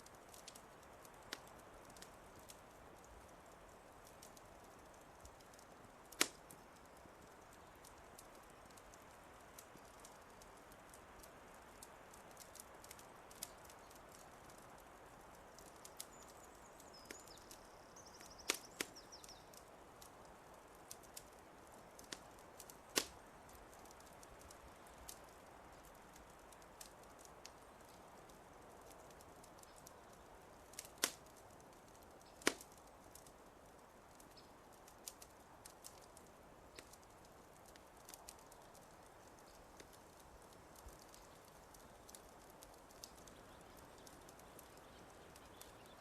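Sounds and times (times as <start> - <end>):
wood fire crackling: 0.0 - 46.0
faint high bird chirping: 15.8 - 19.6, 43.2 - 46.0.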